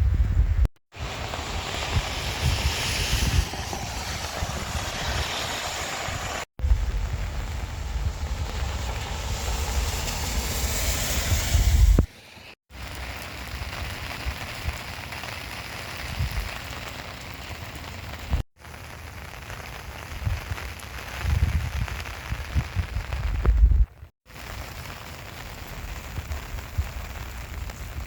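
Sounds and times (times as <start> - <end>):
wind buffeting microphone: 0.0 - 12.1, 20.1 - 24.0
heavy rain on pavement and puddles: 0.9 - 28.0.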